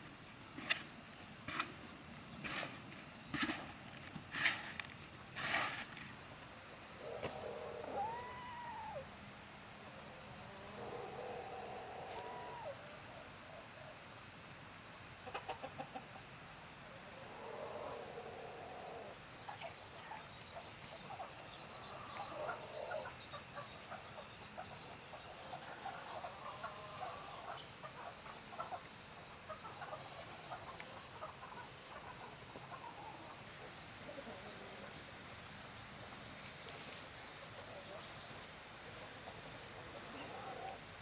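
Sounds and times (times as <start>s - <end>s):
chickens clucking: 7.0s - 9.0s, 15.2s - 16.4s, 17.1s - 40.9s.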